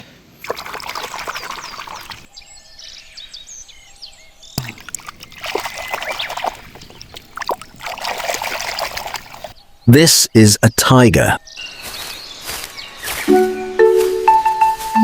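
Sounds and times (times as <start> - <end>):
water splashing and trickling: 0.4 - 2.3, 4.6 - 9.6.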